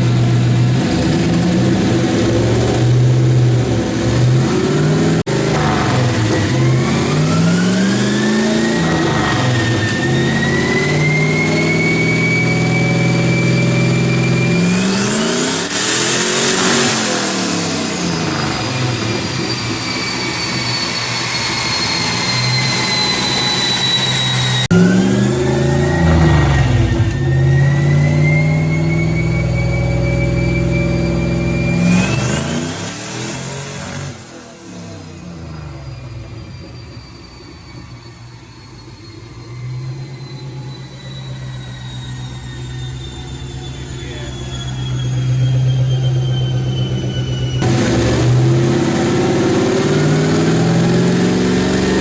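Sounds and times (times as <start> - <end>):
engine revving on dyno: 0.0 - 36.8, 39.4 - 52.0
high whine falling in pitch: 5.6 - 32.6, 35.2 - 52.0
faint high whine: 34.6 - 47.6.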